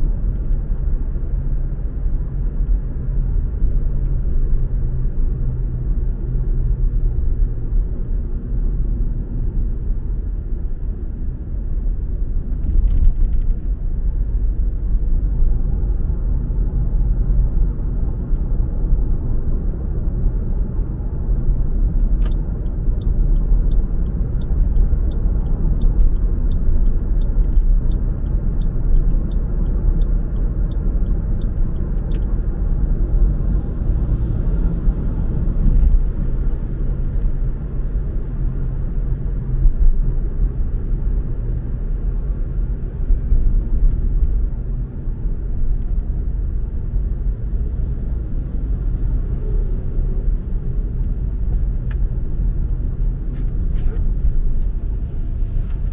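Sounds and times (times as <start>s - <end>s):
car engine and tyre rumble: 0.0s - 55.9s
turn indicator ticking: 21.9s - 32.8s.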